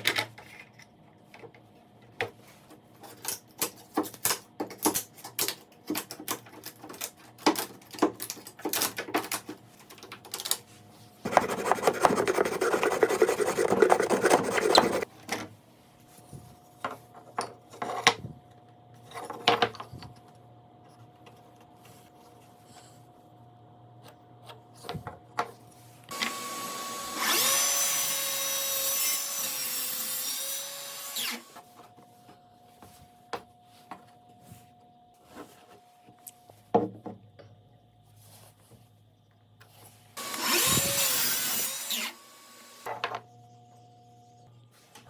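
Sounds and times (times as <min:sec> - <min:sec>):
scraping strokes on wood: 0:11.2 - 0:15.1
rubbing on wood: 0:11.3 - 0:15.0.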